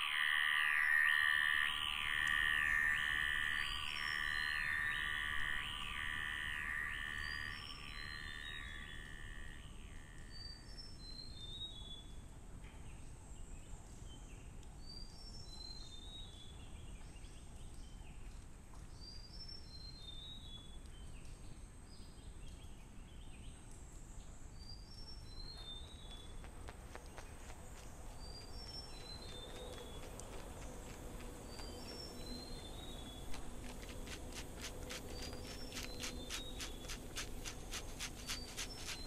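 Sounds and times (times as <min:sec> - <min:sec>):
bird whistling descending notes: 0:00.0 - 0:08.6
electronic music with gliding tones: 0:00.0 - 0:08.6
high insect drone: 0:00.0 - 0:10.5, 0:27.4 - 0:39.0.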